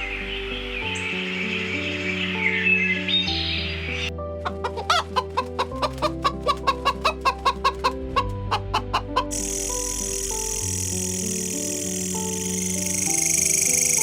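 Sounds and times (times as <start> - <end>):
background music with chords: 0.0 - 14.0
chicken clucking: 4.5 - 9.4.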